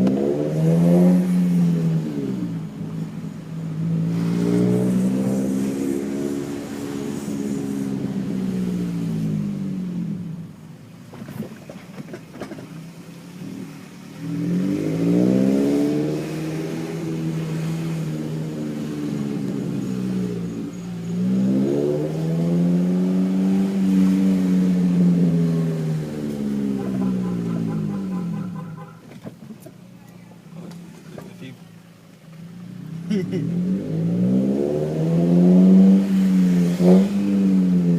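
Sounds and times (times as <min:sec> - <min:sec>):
car exhaust note: 0:13.4 - 0:29.4.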